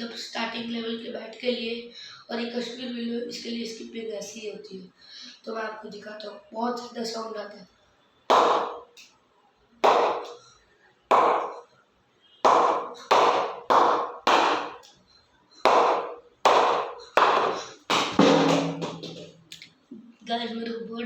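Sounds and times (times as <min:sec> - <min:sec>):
ball hitting cricket bat: 0:08.3 - 0:08.9, 0:09.8 - 0:10.4, 0:11.1 - 0:11.6, 0:12.5 - 0:14.9, 0:15.7 - 0:19.4.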